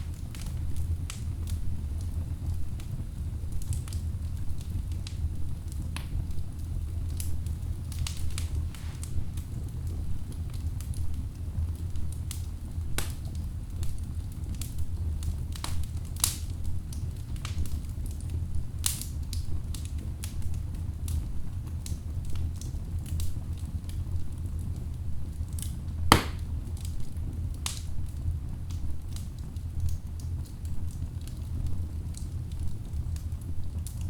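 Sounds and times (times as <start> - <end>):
fire rumbling: 0.0 - 14.1
logs crackling and popping: 3.6 - 11.0, 25.5 - 26.4.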